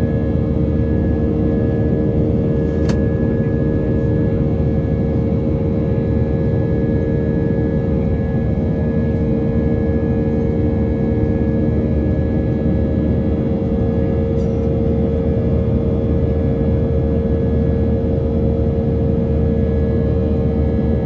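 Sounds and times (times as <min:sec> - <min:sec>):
jet engines rumbling in cabin: 0:00.0 - 0:21.0.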